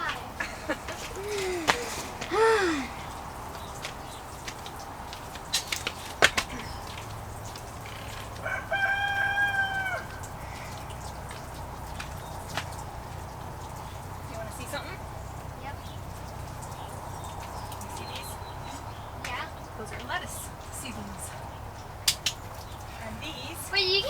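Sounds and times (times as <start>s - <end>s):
rooster crowing: 7.9s - 11.3s.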